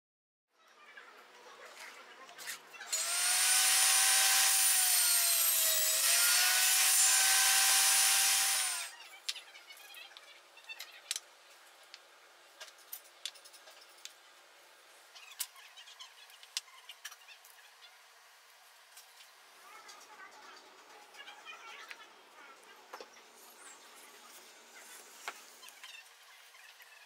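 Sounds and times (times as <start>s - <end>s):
electric saw cutting wood: 2.9s - 9.0s.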